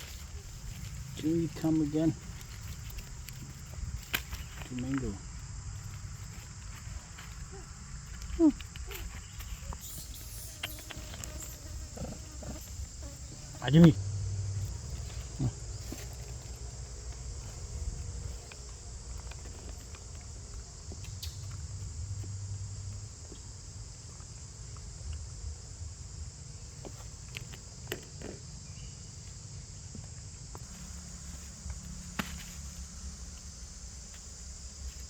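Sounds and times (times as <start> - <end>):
high-pitched insect chorus: 0.0 - 35.0.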